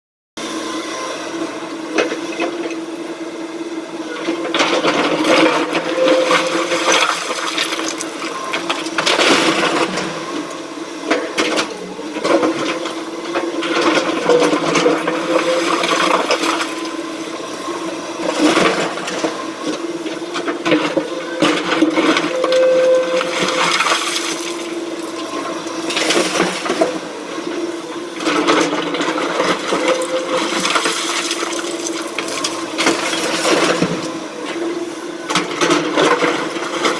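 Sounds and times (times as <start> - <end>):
excavator running: 0.4 - 36.9
bucket digging and dumping: 23.1 - 24.8.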